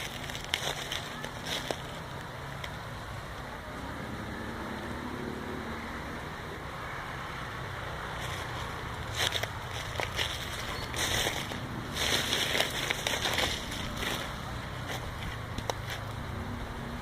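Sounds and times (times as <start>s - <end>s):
light crackles: 0.0s - 3.5s, 8.2s - 16.2s
distant vehicle engine rumble: 0.0s - 17.0s.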